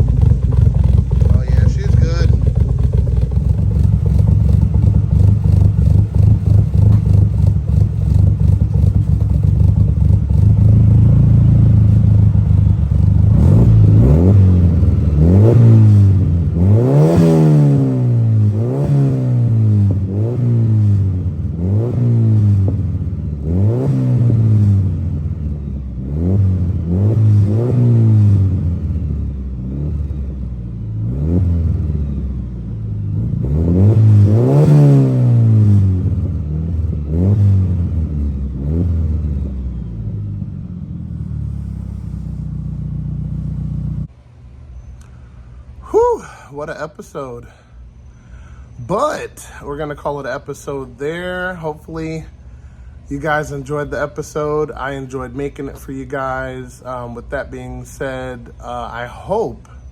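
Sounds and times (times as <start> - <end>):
engine revving: 0.0 - 44.1
car engine idling: 0.0 - 59.9.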